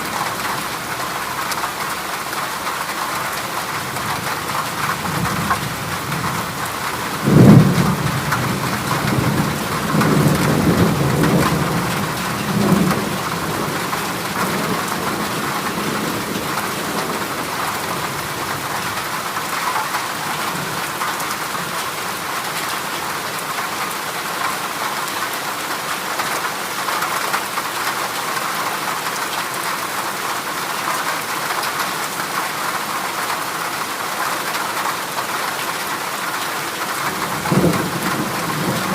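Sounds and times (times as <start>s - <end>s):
heavy rain on metal roof: 0.0s - 38.9s
thunderclap rumbling: 4.8s - 19.0s, 37.0s - 38.9s.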